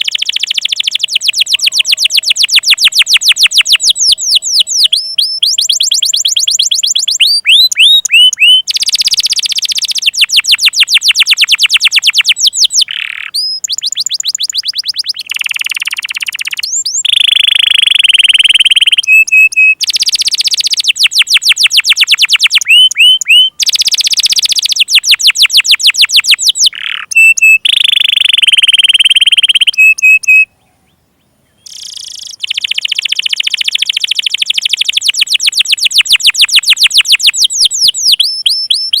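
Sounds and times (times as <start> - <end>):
canary song trills: 0.0 - 39.0.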